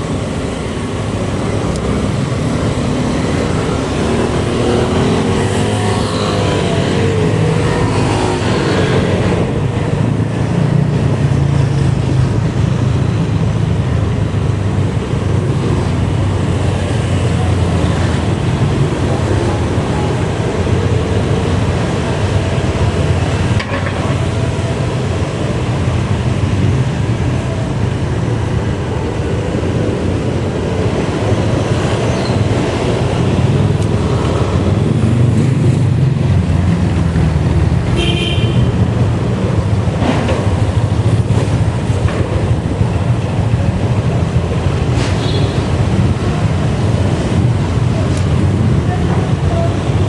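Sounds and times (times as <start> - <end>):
bike road noise: 0.0 - 50.0.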